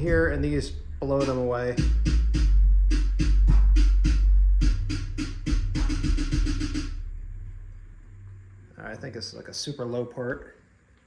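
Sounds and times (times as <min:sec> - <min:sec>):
drum machine hits: 0:00.0 - 0:07.1
deep sustained bass note: 0:00.0 - 0:09.1.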